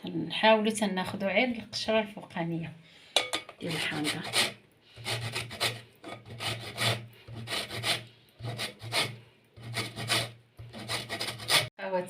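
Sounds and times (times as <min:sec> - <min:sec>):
lemon rasping on grater: 0:03.6 - 0:11.7.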